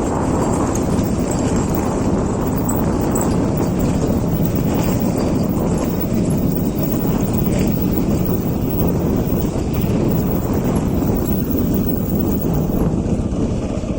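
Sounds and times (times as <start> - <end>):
motorcycle engine putter: 0.0 - 12.8.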